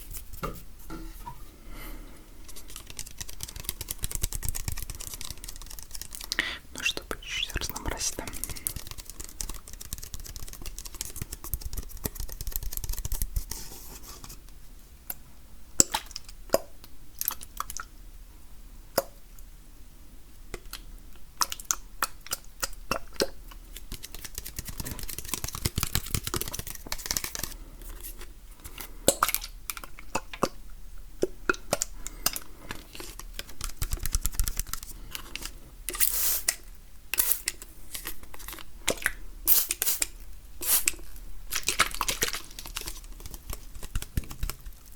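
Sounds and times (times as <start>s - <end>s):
hands rubbing and tapping: 2.6s - 14.4s, 23.8s - 27.6s, 33.4s - 34.9s, 42.6s - 44.9s.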